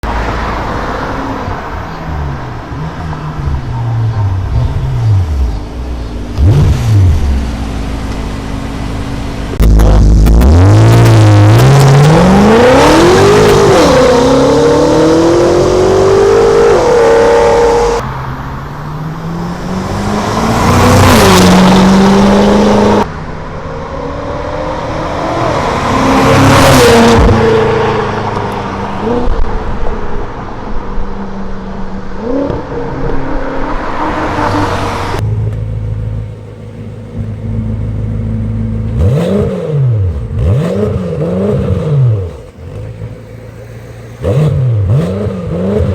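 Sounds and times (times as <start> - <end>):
car engine accelerating hard: 0.0 - 18.0, 19.1 - 23.1, 31.8 - 45.9.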